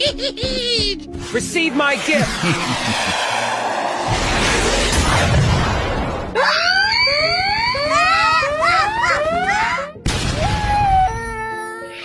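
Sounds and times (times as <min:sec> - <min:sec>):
cartoon rushing noise: 0:01.2 - 0:09.9
wavering squeal-like tones: 0:06.4 - 0:10.0.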